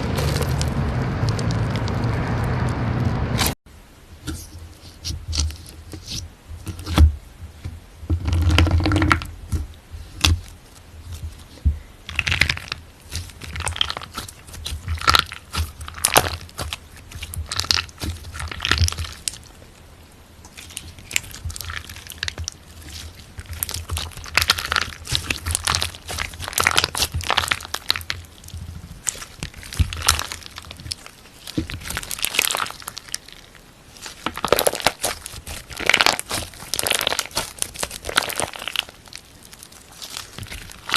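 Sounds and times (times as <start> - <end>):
slime squeezed by hand crackling: 12.1 - 19.6, 20.5 - 40.9.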